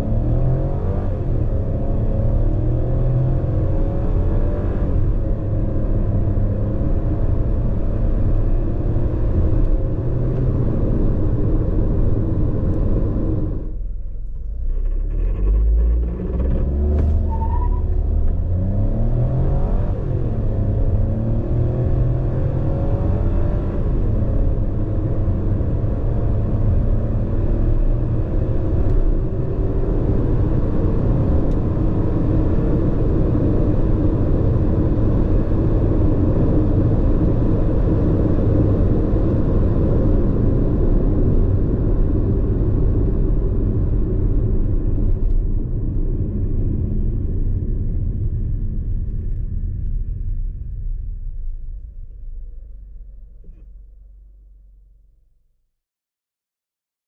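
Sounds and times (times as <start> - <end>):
car engine accelerating: 0.0 - 55.0
road and tyre noise: 0.0 - 55.0.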